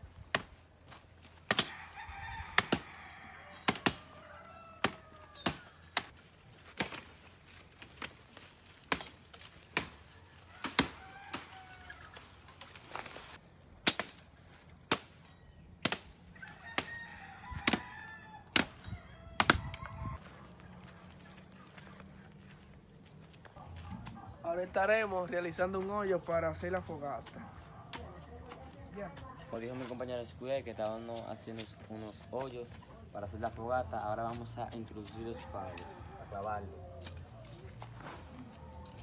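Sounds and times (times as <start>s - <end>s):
firewood being chopped: 0.2s - 7.2s, 7.8s - 11.9s, 13.8s - 15.2s, 15.8s - 17.0s, 17.6s - 18.8s, 19.4s - 19.8s
rooster crowing: 1.6s - 5.9s, 10.1s - 12.2s, 16.4s - 20.8s, 35.1s - 36.8s.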